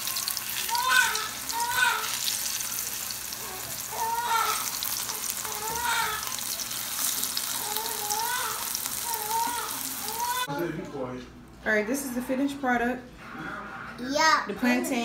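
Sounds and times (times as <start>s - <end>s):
food sizzling in hot oil: 0.0s - 10.5s.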